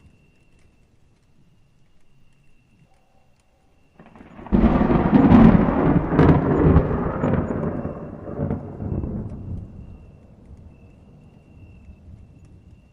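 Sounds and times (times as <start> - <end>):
thunder cracking and rumbling: 4.0 - 12.9.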